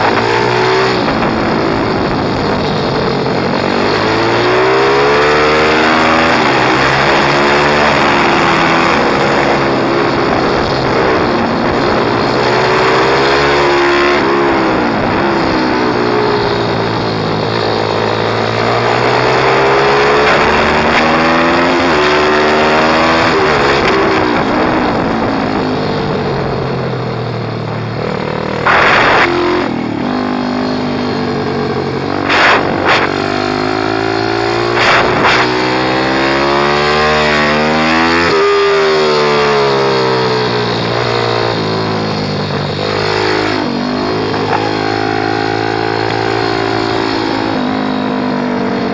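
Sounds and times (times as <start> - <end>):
motorbike engine revving: 0.0 - 48.9
loud noise bursts: 27.8 - 30.0, 30.8 - 35.6.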